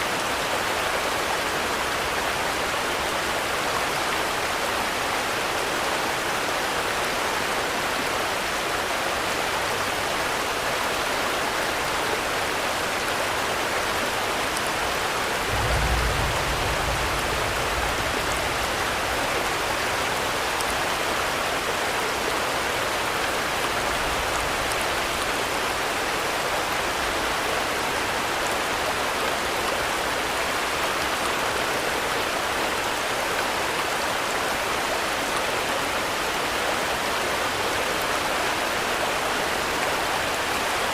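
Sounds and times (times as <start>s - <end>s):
steady rain falling: 0.0s - 40.9s
low rumble: 15.4s - 19.3s.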